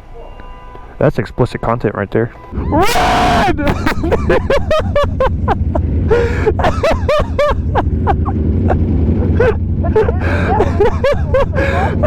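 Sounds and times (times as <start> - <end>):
wind: 0.0 - 12.0
motorcycle engine rumble: 2.5 - 12.0
man laughing hard: 2.6 - 12.0.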